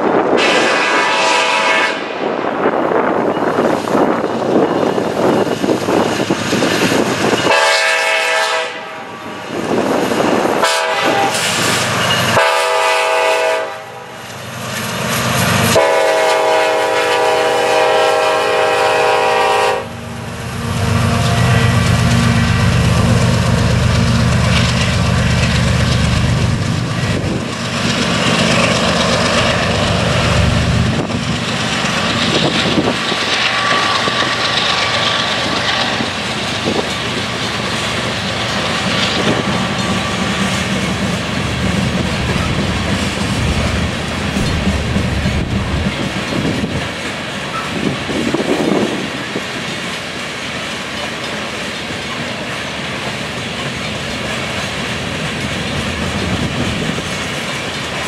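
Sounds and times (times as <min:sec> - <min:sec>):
train horn blasts: 0:00.3 - 0:02.2, 0:07.4 - 0:09.3, 0:10.6 - 0:11.6, 0:12.3 - 0:14.2, 0:15.7 - 0:22.5, 0:33.3 - 0:34.4
hopper cars clickety-clack on rails: 0:02.1 - 0:58.0.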